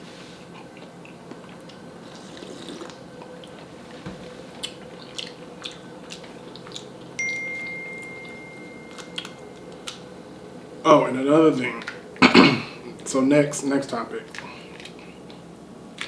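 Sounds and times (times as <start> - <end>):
wet mouth sounds of eating: 0.6 - 3.7, 4.6 - 7.1
clear ringing note: 7.2 - 11.2.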